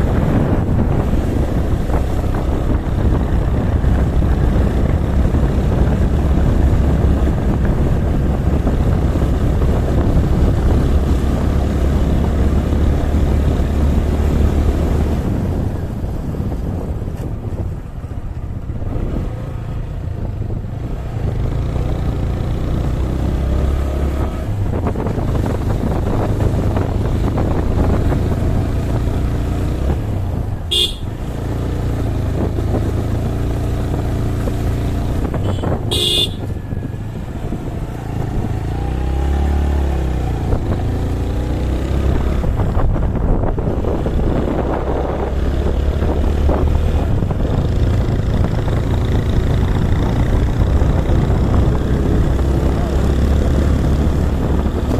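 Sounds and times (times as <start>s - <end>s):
vehicle engine running: 0.0s - 54.9s
short horn toots: 30.7s - 31.1s, 35.4s - 36.5s.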